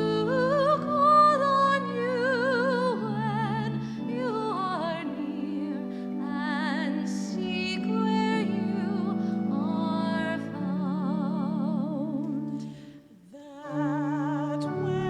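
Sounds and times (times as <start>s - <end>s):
person singing with wide vibrato: 0.0s - 15.0s.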